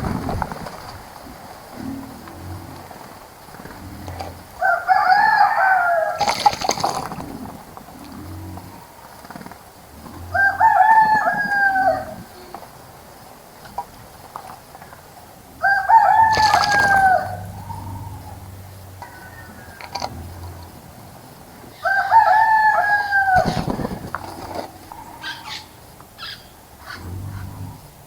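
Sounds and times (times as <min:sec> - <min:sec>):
rooster crowing: 0:04.5 - 0:06.7, 0:10.3 - 0:12.4, 0:15.6 - 0:20.8, 0:21.7 - 0:26.4.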